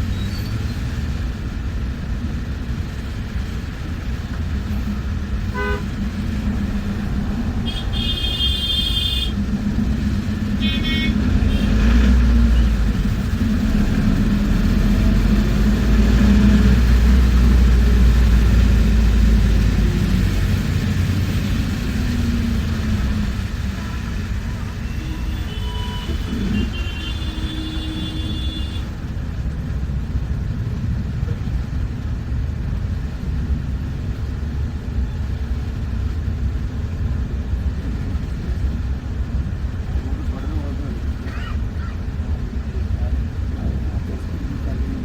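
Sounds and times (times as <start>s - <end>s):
bus engine drone: 0.0s - 45.0s
traffic horns honking: 5.4s - 6.2s, 7.5s - 9.4s, 10.4s - 12.9s, 23.5s - 29.0s.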